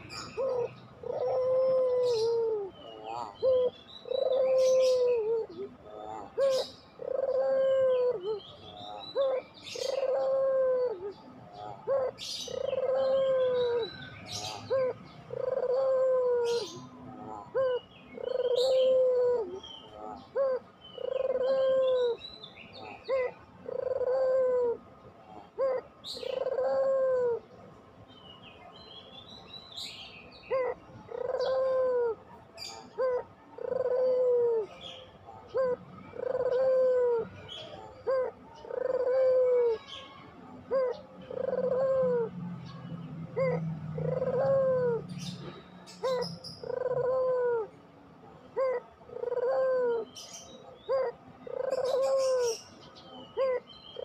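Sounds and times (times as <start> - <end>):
small birds chirping: 0.0 - 26.7, 32.4 - 54.0
dove cooing: 0.0 - 27.9, 30.2 - 54.0.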